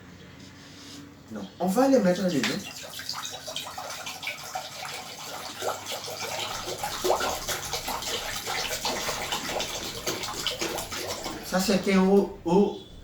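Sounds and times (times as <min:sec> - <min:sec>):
water pouring into glass bowl: 0:02.1 - 0:12.4.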